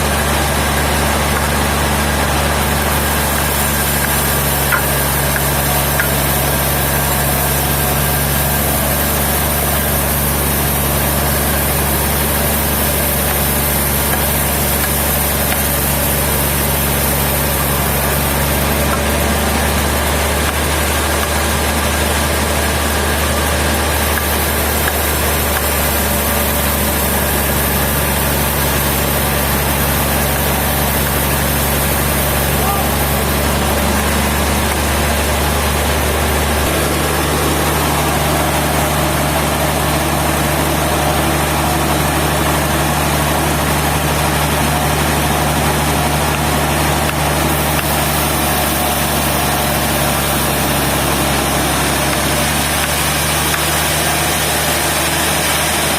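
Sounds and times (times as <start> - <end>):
sawmill machinery running: 0.0 - 55.9.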